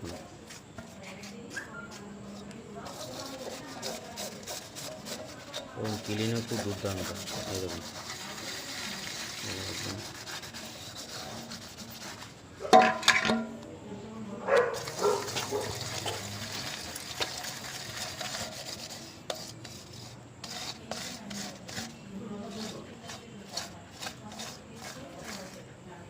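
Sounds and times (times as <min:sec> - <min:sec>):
utensils being scrubbed: 0:00.0 - 0:13.5, 0:14.6 - 0:25.7
utensils clattering: 0:12.7 - 0:13.6.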